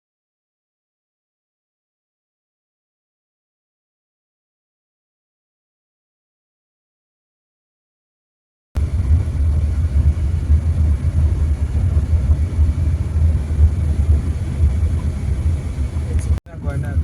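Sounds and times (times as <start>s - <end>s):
car engine and road noise: 8.8s - 17.0s.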